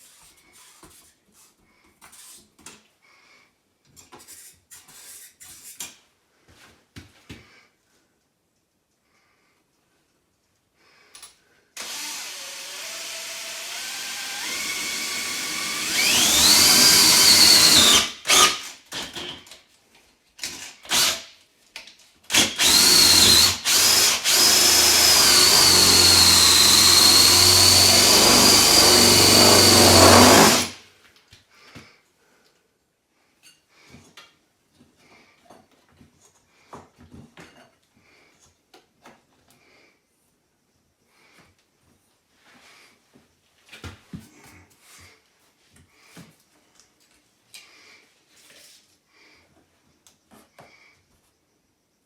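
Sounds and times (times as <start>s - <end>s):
electric power tool whining: 11.8s - 18.7s, 22.3s - 30.8s.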